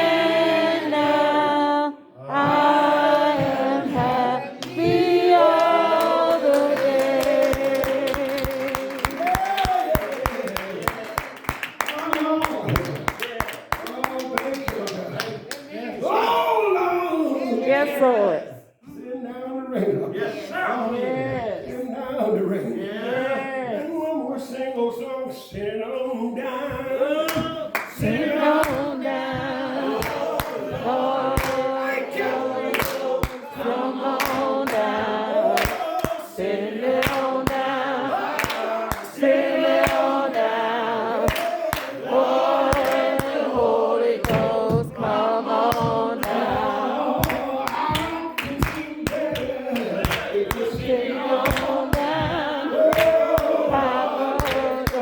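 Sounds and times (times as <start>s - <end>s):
congregation singing a hymn: 0.0s - 11.0s, 20.0s - 55.0s
hand claps: 2.4s - 15.7s, 27.3s - 31.9s, 32.7s - 40.5s, 41.2s - 55.0s.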